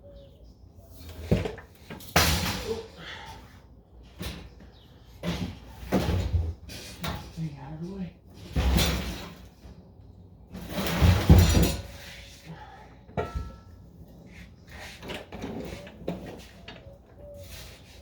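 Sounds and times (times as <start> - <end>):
loud scraping rustle: 10.5 - 12.5.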